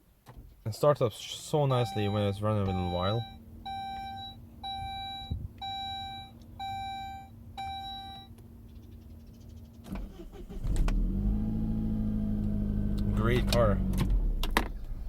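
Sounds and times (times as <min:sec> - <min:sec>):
car warning chime beeping: 0:01.6 - 0:08.4
car engine starting and idling: 0:01.7 - 0:08.3, 0:09.8 - 0:15.0.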